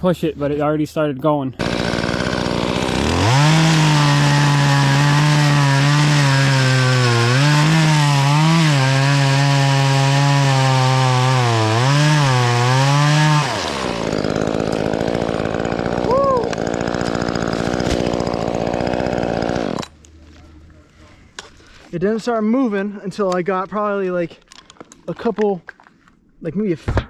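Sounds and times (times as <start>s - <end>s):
electric chainsaw cutting wood: 1.6s - 20.0s.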